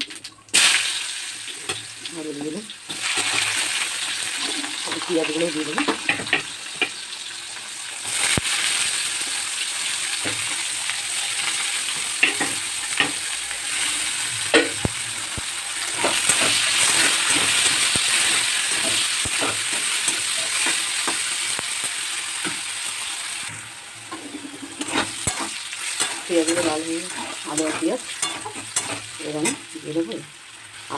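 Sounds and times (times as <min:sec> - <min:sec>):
onions sizzling in hot oil: 0:00.0 - 0:30.9
stirring clicks and scrapes: 0:14.7 - 0:21.7, 0:24.1 - 0:29.7.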